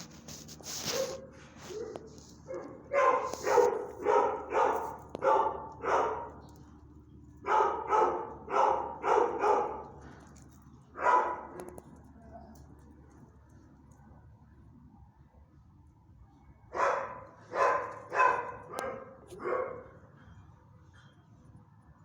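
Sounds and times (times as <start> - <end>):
dog barking: 0.8 - 6.4, 7.4 - 10.0, 11.0 - 12.5, 16.7 - 20.0.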